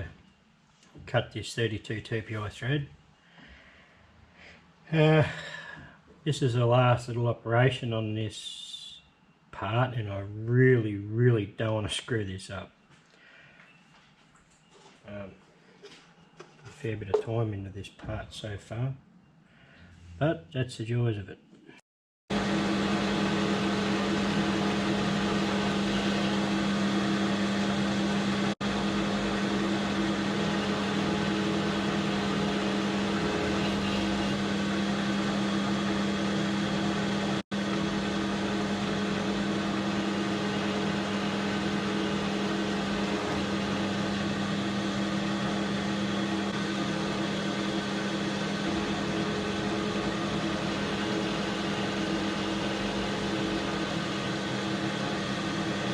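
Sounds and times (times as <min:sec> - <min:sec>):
metal lathe motor humming: 0:22.3 - 0:55.9.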